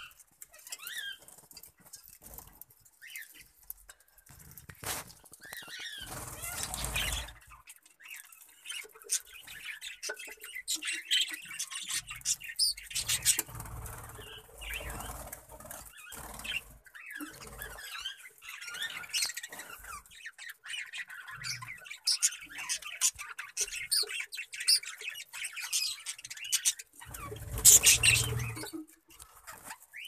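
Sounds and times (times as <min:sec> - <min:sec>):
budgerigars chirping and chattering: 0:00.0 - 0:03.7, 0:05.3 - 0:30.0
wing flutters: 0:04.3 - 0:07.5, 0:12.9 - 0:18.0, 0:27.0 - 0:29.8.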